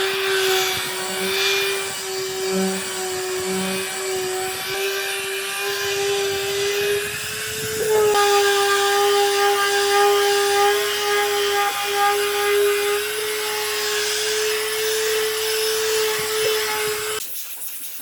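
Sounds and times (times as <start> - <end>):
power tool working wood: 0.0 - 17.2.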